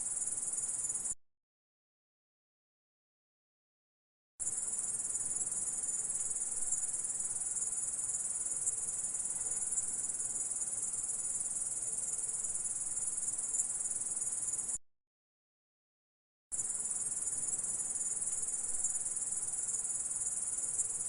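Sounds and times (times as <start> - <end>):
insect high-pitched trill: 4.4 - 14.8, 16.6 - 21.0.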